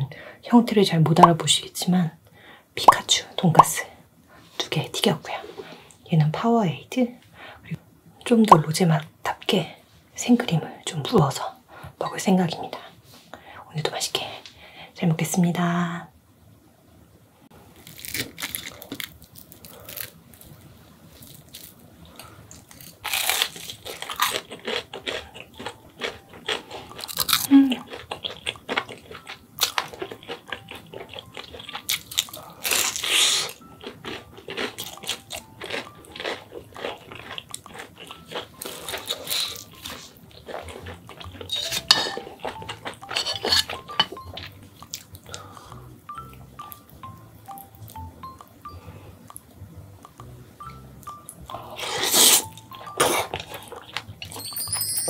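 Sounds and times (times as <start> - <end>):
crunching and chewing fried food: 17.7 - 54.4.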